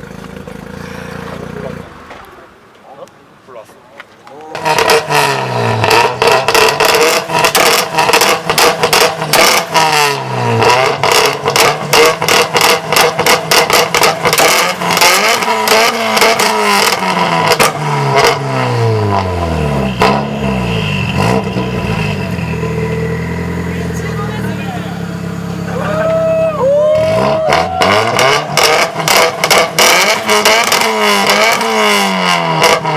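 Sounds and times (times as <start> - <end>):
car engine revving: 0.0 - 2.6, 4.4 - 32.9
car engine idling: 0.0 - 3.7, 4.3 - 32.8
exhaust crackles: 4.0 - 32.9.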